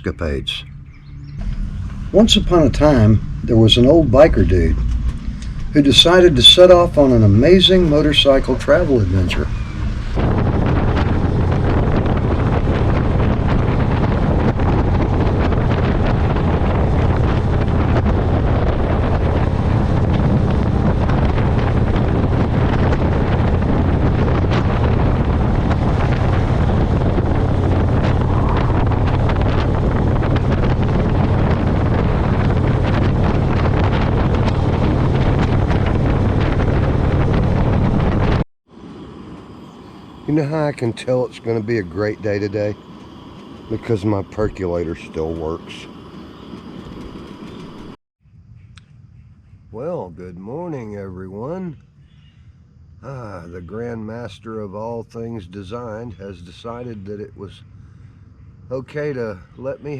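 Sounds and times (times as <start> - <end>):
wind noise on microphone: 0.0 - 53.0
motorcycle engine running: 0.8 - 38.3.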